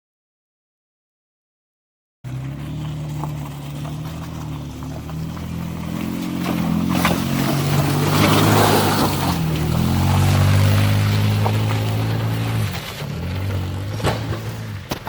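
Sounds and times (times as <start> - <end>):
truck engine running: 2.3 - 15.0.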